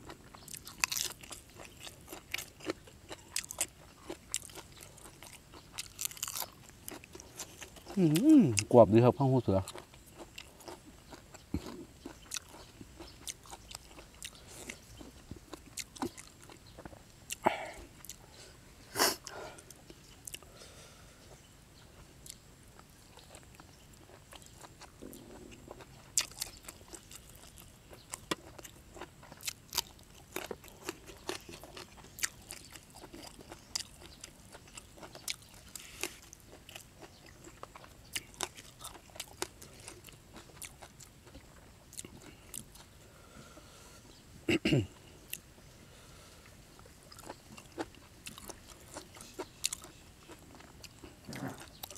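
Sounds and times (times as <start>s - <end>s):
man chewing crunchy food: 0.0s - 51.9s.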